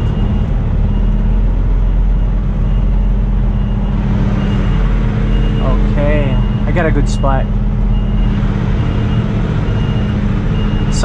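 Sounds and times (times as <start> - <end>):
diesel truck engine running: 0.0 - 11.0
reversing alarm beeping: 0.0 - 11.0.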